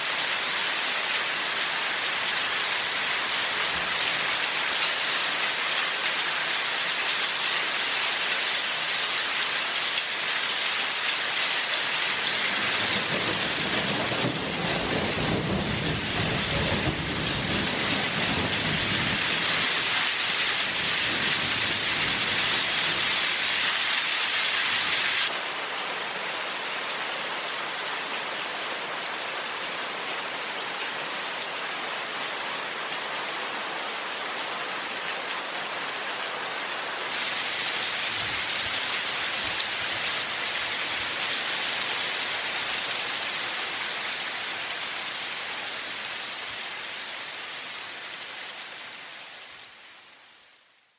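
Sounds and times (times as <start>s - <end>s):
heavy rain: 0.0s - 50.9s
thunder rumbling: 12.4s - 19.8s.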